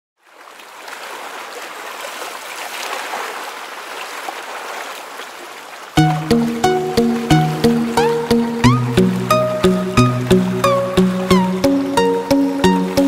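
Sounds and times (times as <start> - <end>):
sea water rushing: 0.2 - 13.0
music with a regular beat: 6.0 - 13.0.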